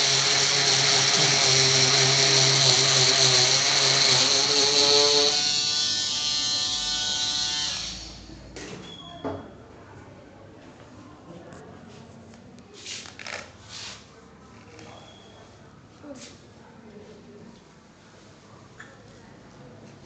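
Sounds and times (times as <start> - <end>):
electric cutter motor winding down: 0.0 - 8.3.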